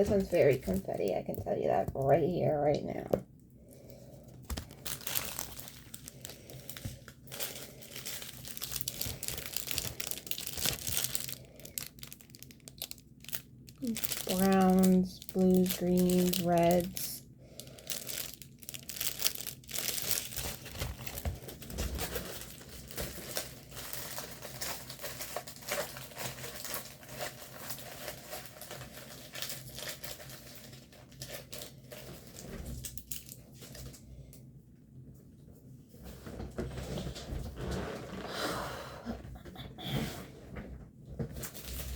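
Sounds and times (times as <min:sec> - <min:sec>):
plastic packaging crinkling: 0:00.0 - 0:03.0, 0:04.2 - 0:34.0, 0:41.3 - 0:41.9.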